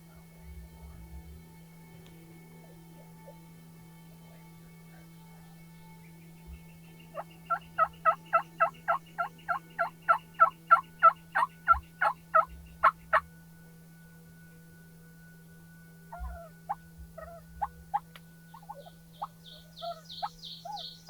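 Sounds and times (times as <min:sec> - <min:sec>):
wild turkey yelping: 0:07.1 - 0:13.2, 0:16.1 - 0:21.0.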